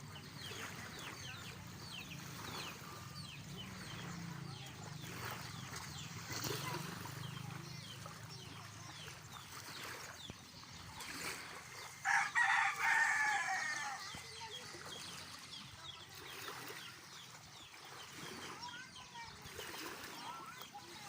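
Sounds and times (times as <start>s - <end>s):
rooster crowing: 12.0s - 14.1s.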